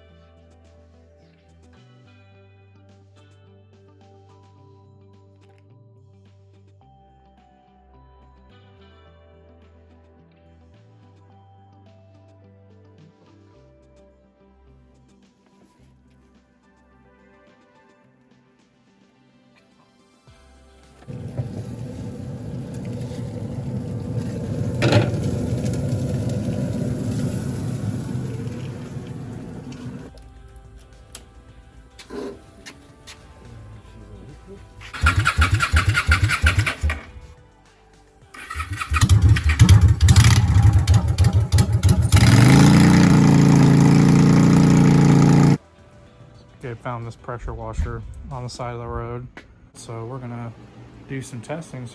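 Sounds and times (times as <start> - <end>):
small petrol engine running: 21.0 - 30.1, 34.8 - 37.2, 38.4 - 45.6
low rumbling noise: 21.1 - 30.1.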